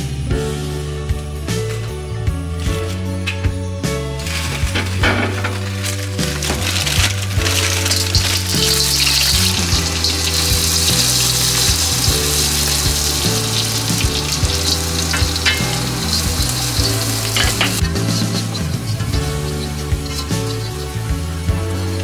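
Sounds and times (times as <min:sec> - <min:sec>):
background music: 0:00.0 - 0:22.0
shallots sizzling in oil: 0:04.2 - 0:22.0
spatula stirring in a wok: 0:06.2 - 0:22.0.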